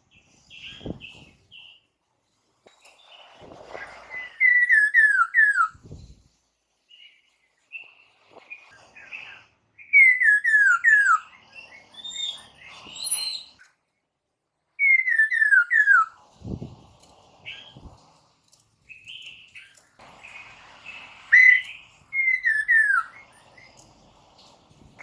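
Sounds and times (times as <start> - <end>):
soft high bird chirps and warbles: 0.0 - 25.0
bird whistled song phrases: 4.0 - 5.9, 9.0 - 13.7, 14.8 - 16.2, 21.3 - 23.8.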